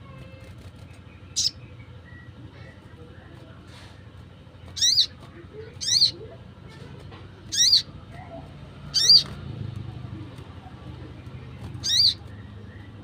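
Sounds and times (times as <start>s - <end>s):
sunbird calling: 1.0s - 2.7s, 4.8s - 5.2s, 5.8s - 6.4s, 7.5s - 7.9s, 8.9s - 9.3s, 11.8s - 12.9s.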